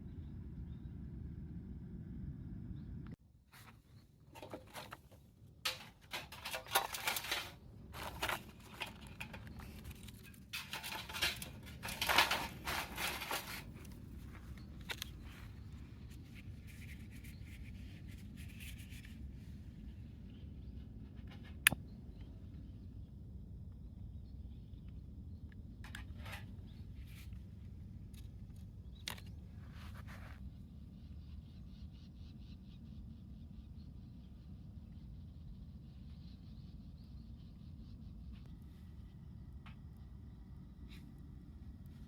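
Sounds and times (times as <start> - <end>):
rustling scratching handling noise: 3.5 - 19.2, 29.1 - 30.5.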